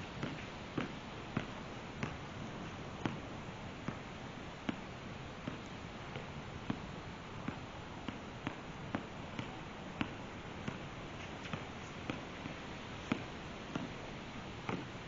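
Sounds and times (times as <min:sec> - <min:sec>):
steady background hiss: 0:00.0 - 0:15.0
basketball bouncing: 0:00.2 - 0:04.0, 0:07.4 - 0:11.7, 0:14.7 - 0:14.9.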